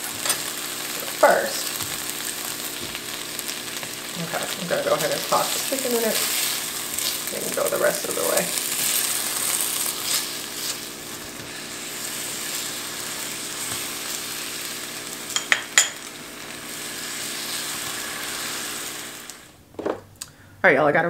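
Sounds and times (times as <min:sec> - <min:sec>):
chicken sizzling in a frying pan: 0:00.0 - 0:19.6
faint steady hum: 0:00.0 - 0:21.0
spatula stirring: 0:05.6 - 0:14.5.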